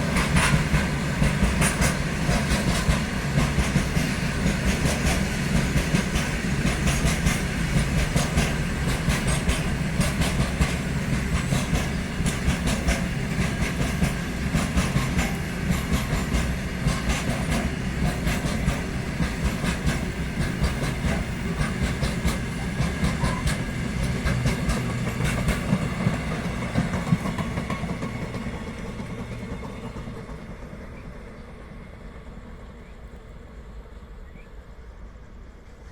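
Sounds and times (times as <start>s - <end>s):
freight train wheels clicking on rails: 0.0s - 34.1s
train rumble: 0.0s - 35.9s.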